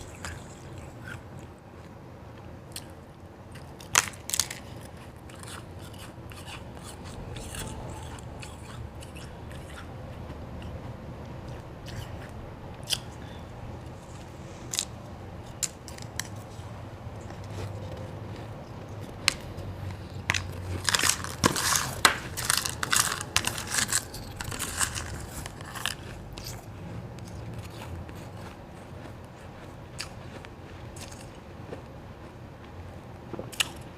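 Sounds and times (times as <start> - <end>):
person crunching ice: 3.6 - 9.8, 14.0 - 16.5, 20.0 - 26.6.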